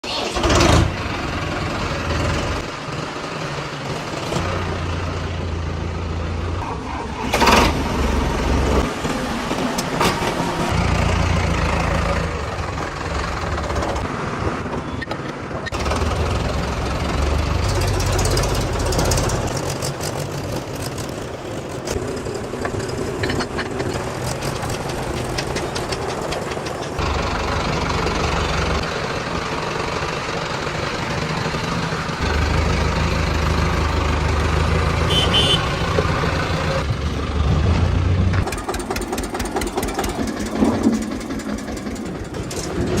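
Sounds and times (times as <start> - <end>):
tractor diesel engine running: 0.0 - 43.0
sharp clatter: 17.6 - 27.1, 38.4 - 43.0.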